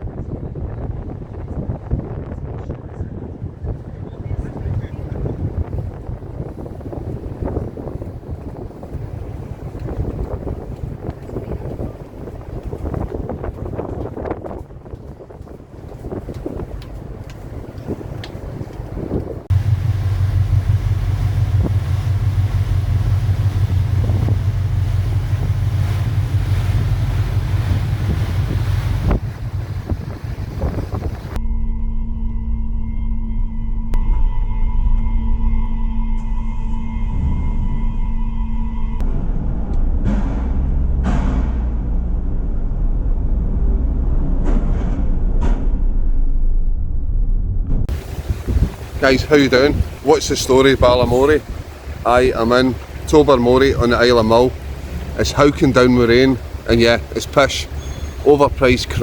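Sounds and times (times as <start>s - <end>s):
ferry engine noise: 0.0s - 31.4s, 33.1s - 59.0s
sea wash: 0.0s - 31.4s, 47.9s - 59.0s
wind buffeting microphone: 0.0s - 31.4s, 39.1s - 59.0s.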